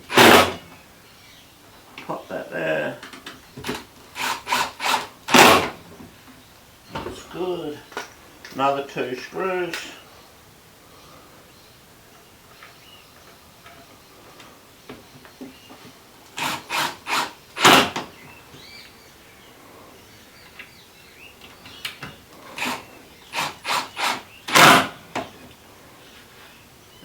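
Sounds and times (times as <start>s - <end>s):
impact driver driving screws into wood: 0.0s - 0.7s, 3.6s - 5.8s, 16.4s - 18.2s, 22.5s - 25.3s.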